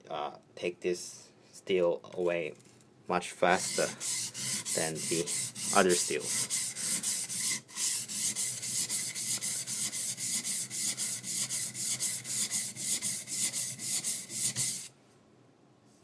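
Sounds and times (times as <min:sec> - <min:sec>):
knife scraping on sharpening stone: 0:03.6 - 0:14.9.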